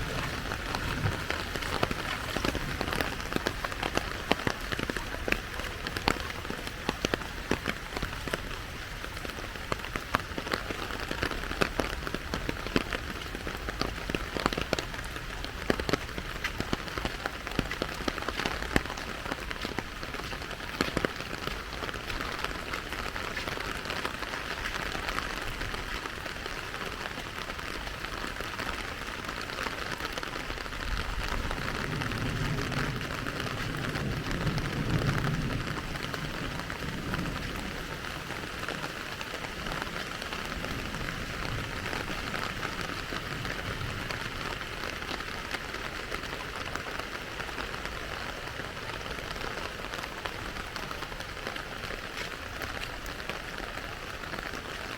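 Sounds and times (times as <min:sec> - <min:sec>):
close raindrop ticks: 0:00.0 - 0:54.9
steady rain falling: 0:00.0 - 0:54.9.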